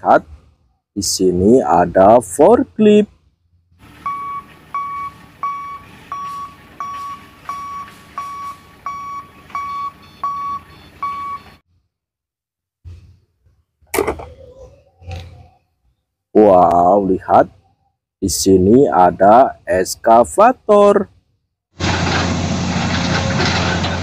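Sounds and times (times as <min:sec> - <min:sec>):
forklift warning beeps: 0:04.0 - 0:11.6.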